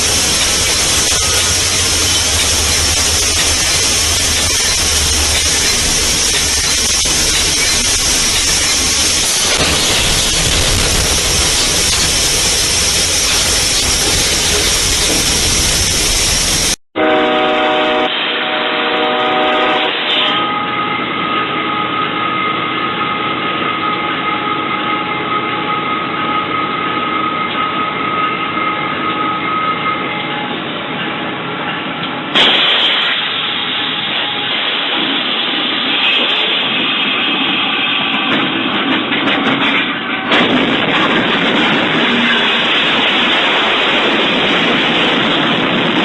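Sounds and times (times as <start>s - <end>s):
train running: 0.0s - 46.0s
train horn: 17.0s - 22.1s.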